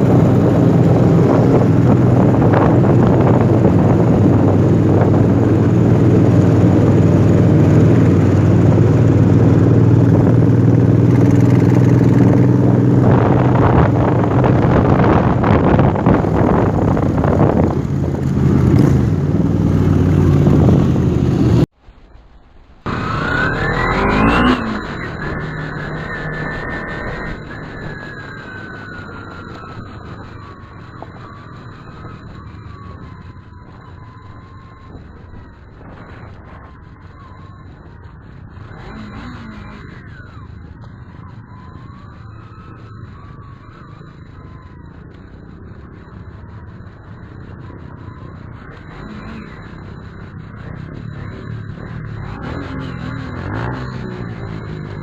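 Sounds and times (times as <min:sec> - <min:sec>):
motorcycle engine running: 0:00.0 - 0:21.7
rising tone: 0:00.0 - 0:55.0
wind on microphone: 0:00.0 - 0:55.0.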